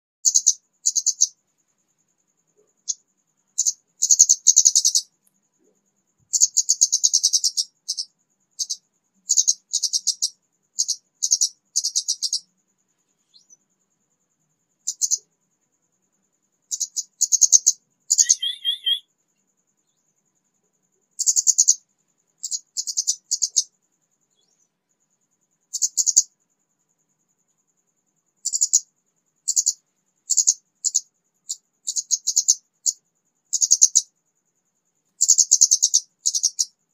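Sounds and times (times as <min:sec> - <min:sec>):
bird twittering: 0:03.6 - 0:05.1, 0:16.7 - 0:19.1
lower two-pitched bird phrase: 0:18.1 - 0:19.0.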